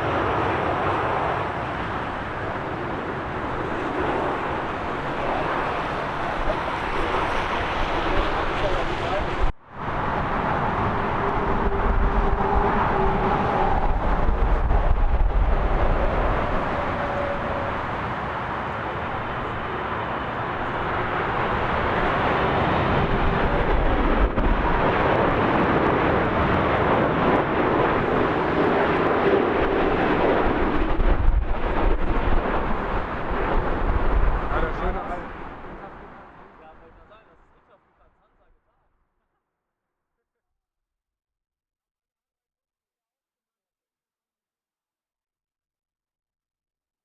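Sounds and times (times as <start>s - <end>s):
jet engines rushing: 0.0s - 37.1s.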